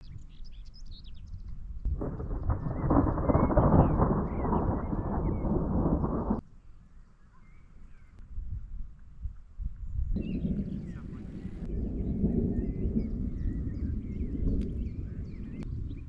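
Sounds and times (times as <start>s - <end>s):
birds chirping: 0.0s - 8.2s, 9.8s - 16.0s
thunder rumbling: 1.8s - 6.4s, 10.2s - 16.0s.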